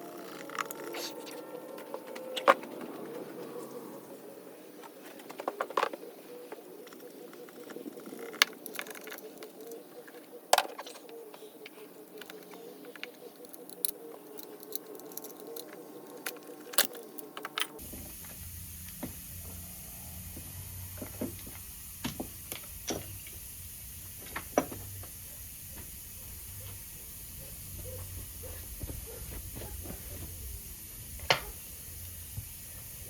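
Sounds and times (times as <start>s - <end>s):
low hum: 0.0s - 4.9s, 17.8s - 33.0s
hand tools clicking and tapping: 6.8s - 17.8s
steady hiss: 17.8s - 33.0s.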